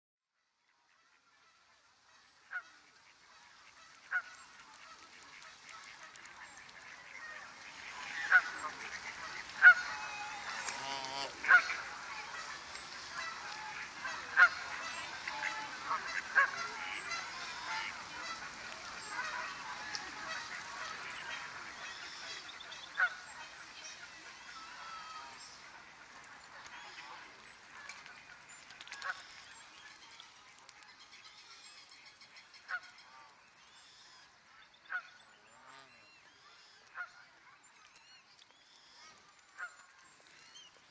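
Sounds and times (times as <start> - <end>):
birds honking: 7.0 - 25.6.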